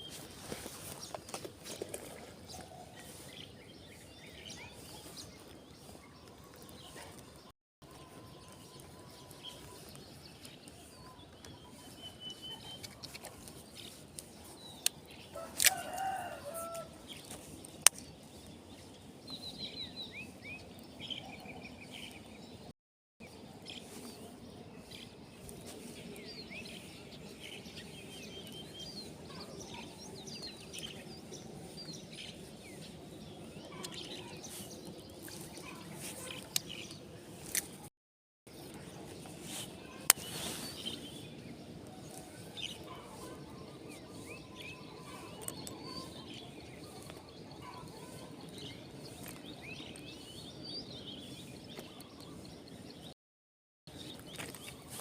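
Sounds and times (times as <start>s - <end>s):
small birds chirping: 0.0s - 37.9s, 38.5s - 53.2s, 53.9s - 55.0s
rooster crowing: 15.4s - 17.0s.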